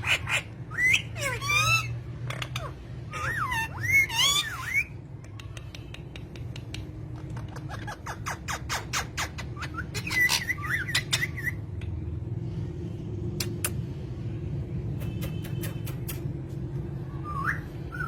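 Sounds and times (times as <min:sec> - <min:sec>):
sharp clicks: 0:05.2 - 0:07.0.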